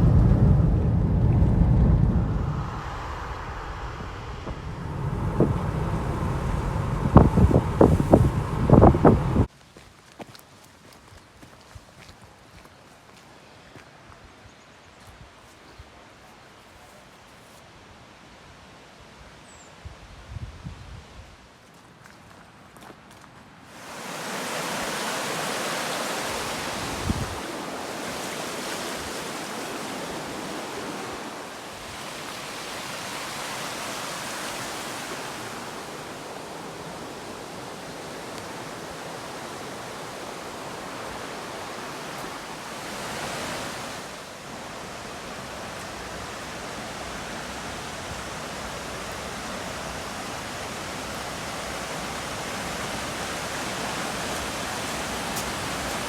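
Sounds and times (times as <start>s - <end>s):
low thump: 0.0s - 9.5s
waterfall roaring: 0.0s - 9.5s, 23.7s - 56.0s.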